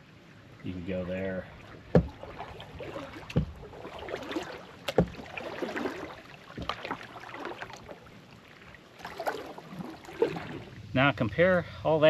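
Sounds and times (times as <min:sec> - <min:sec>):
water splashing from paddle: 0:00.8 - 0:10.9
low paddle knock: 0:01.9 - 0:05.9, 0:06.6 - 0:07.0.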